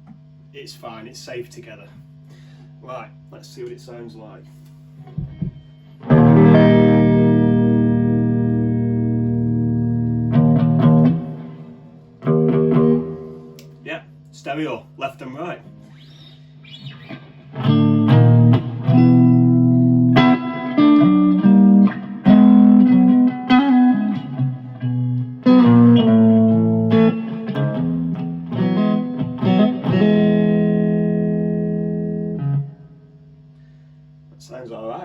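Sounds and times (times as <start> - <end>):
electric guitar strumming chords: 5.0 - 13.8, 15.4 - 33.1.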